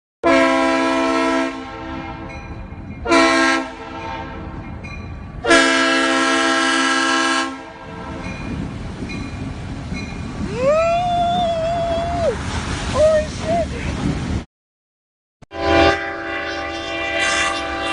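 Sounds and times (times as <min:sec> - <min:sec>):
multi-tone air horn: 0:00.2 - 0:02.2, 0:03.1 - 0:04.4, 0:05.4 - 0:08.2, 0:15.5 - 0:17.9.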